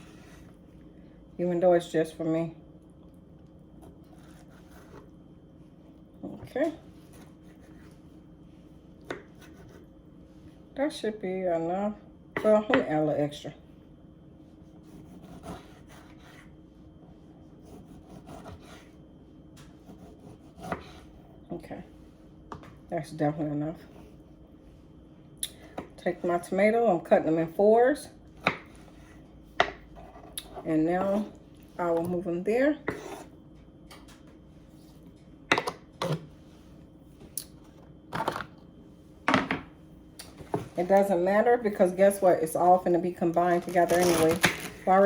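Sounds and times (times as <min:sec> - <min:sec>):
knife scraping cutting board: 0:04.0 - 0:05.1, 0:09.1 - 0:09.9, 0:14.8 - 0:16.5, 0:19.8 - 0:21.1, 0:32.8 - 0:33.3.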